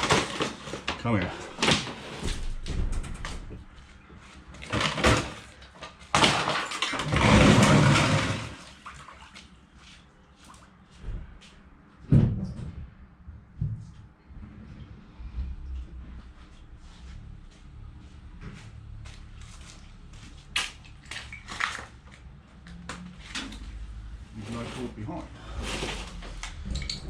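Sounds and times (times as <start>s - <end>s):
rushing scrape: 24.3s - 26.4s.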